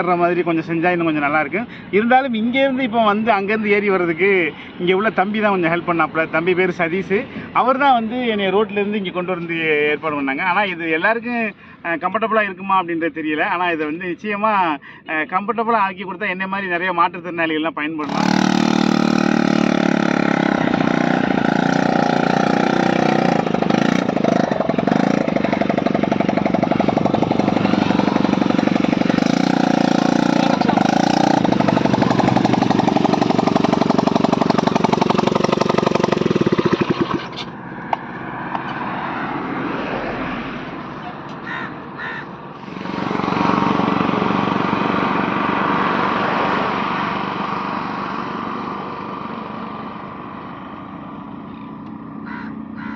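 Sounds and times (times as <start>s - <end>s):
atv engine running: 18.0s - 37.6s, 42.6s - 52.9s.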